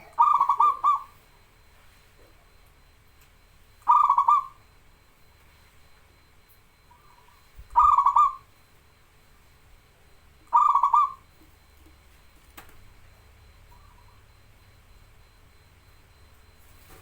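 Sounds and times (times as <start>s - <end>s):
dove cooing: 0.0s - 2.6s, 3.6s - 4.8s, 6.2s - 8.7s, 9.8s - 17.0s.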